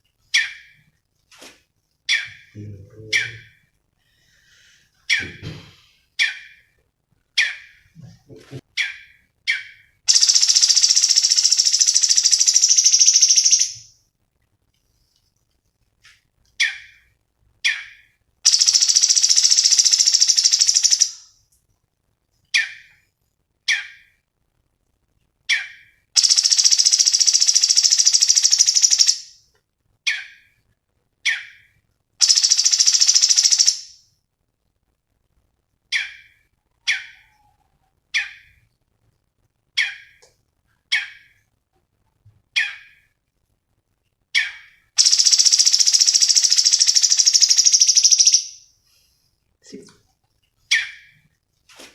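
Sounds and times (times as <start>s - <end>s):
songbird chirp notes: 2.0s - 3.6s.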